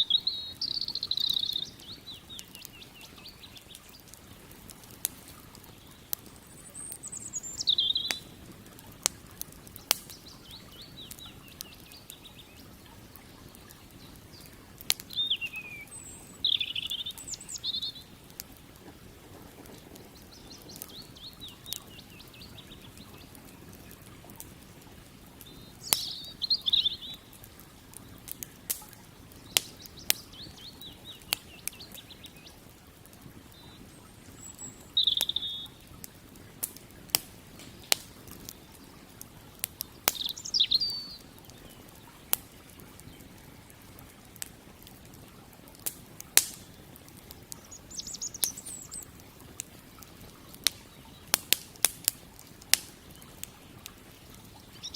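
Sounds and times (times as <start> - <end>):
small bird chirping: 0.0 - 8.5, 9.6 - 24.4, 25.4 - 28.4, 29.2 - 32.7, 33.4 - 36.0, 39.8 - 43.4, 47.2 - 49.2, 52.9 - 54.9
campfire crackling: 0.0 - 54.9
wood popping: 0.8 - 54.9
faint steady rush: 15.7 - 26.3.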